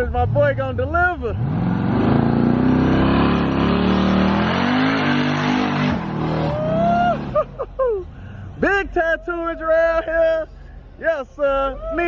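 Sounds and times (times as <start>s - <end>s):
car engine revving: 0.0s - 7.6s
tires squealing on pavement: 1.5s - 7.4s.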